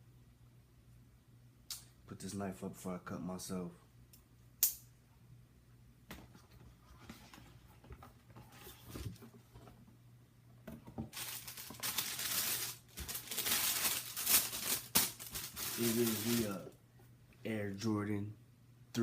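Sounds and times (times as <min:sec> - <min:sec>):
tissue paper rustling: 0:11.1 - 0:16.6.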